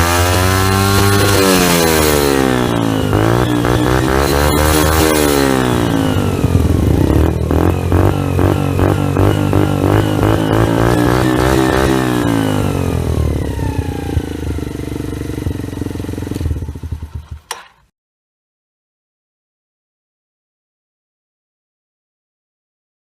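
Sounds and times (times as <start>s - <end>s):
motorcycle engine revving: 0.0s - 17.7s.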